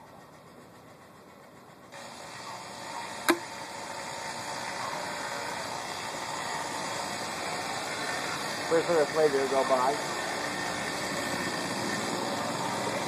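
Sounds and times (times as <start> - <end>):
steady outdoor hiss: 0.0 - 13.0
toy dart pistol firing: 3.3 - 3.6.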